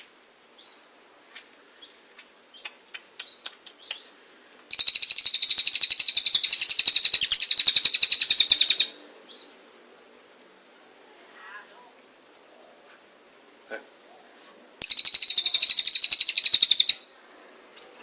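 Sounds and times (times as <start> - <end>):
songbird chirping and trilling: 0.0 - 9.7, 14.8 - 17.2.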